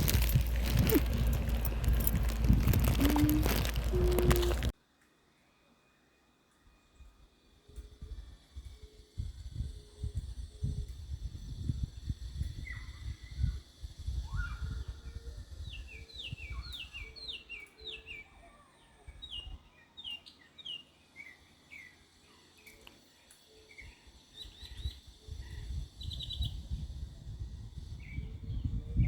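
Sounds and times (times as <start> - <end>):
birds chirping: 0.0 - 4.7
low rumble on microphone: 0.0 - 4.7.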